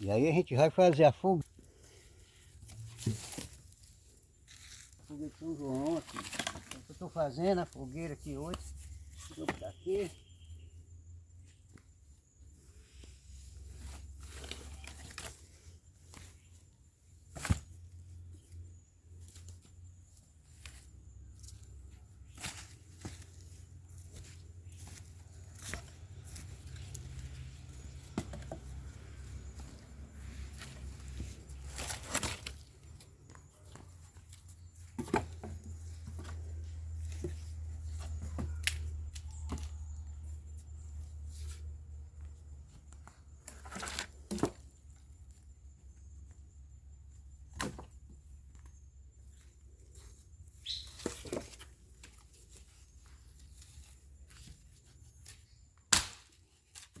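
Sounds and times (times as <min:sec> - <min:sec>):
dry branches snapping and rustling: 0:22.3 - 0:33.1, 0:38.1 - 0:39.8, 0:55.2 - 0:57.0.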